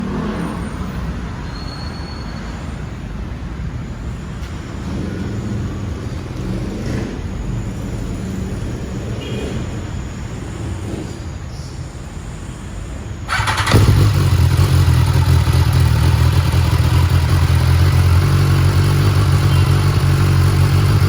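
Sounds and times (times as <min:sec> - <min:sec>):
motorcycle engine idling: 0:13.3 - 0:21.0.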